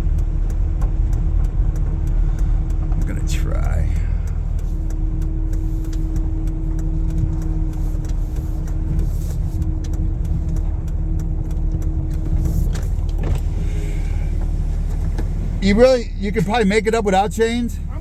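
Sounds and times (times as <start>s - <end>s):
truck engine drone: 0.0s - 18.0s
light clicks and crunches: 0.1s - 18.0s.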